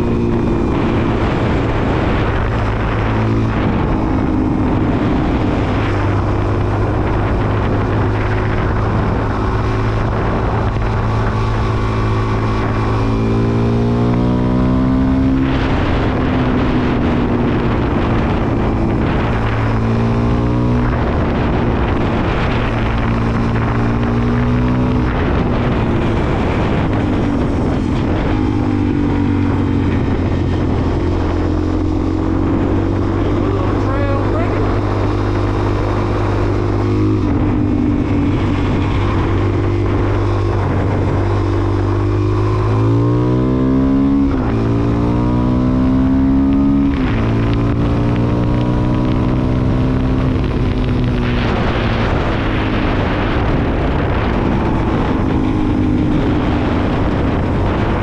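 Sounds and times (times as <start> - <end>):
motorcycle engine revving through gears: 0.0 - 58.0.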